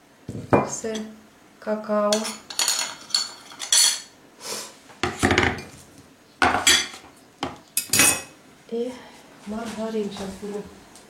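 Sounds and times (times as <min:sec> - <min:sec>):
spoon scraping and clinking bowl: 0:02.2 - 0:04.1.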